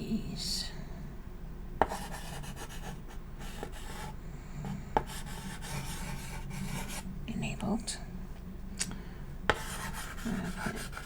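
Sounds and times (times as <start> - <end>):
chalk tapping on board: 1.8 - 2.9, 5.0 - 7.0, 9.5 - 11.0
chalk scratching on chalkboard: 1.8 - 7.0, 9.5 - 11.0.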